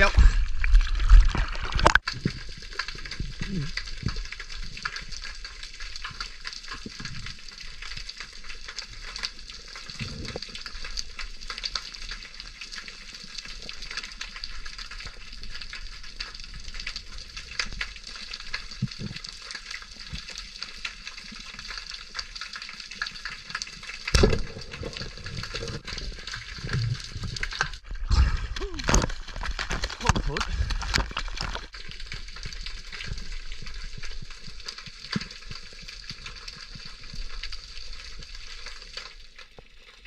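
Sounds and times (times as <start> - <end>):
snapping shrimp crackle: 28.6 - 32.6.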